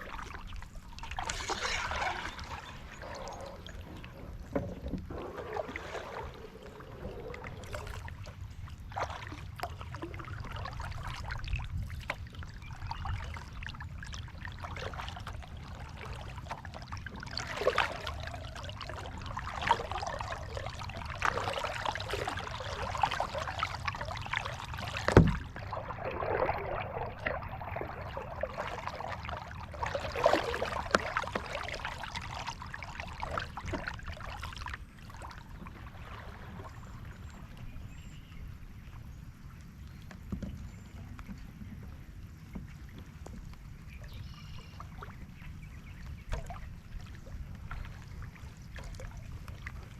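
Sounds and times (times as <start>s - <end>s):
paddle splashing water: 0.0s - 49.9s.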